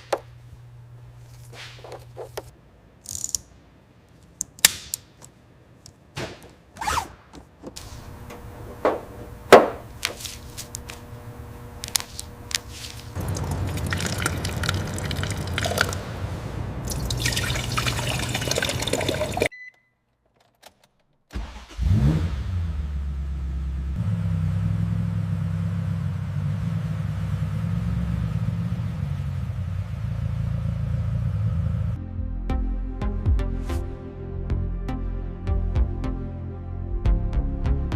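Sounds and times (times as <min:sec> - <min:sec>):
car engine starting and running: 0:07.6 - 0:19.5, 0:20.8 - 0:32.0.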